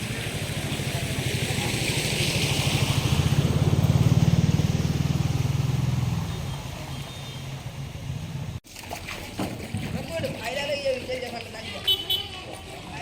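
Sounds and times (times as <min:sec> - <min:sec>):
small engine passing: 0:00.0 - 0:06.8.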